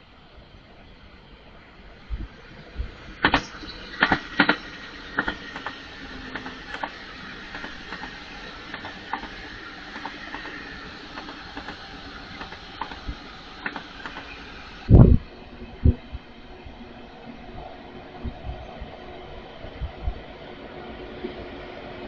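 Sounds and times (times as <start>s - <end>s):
train rolling past: 0.0s - 22.0s
wheels clicking over rail joints: 3.2s - 14.6s.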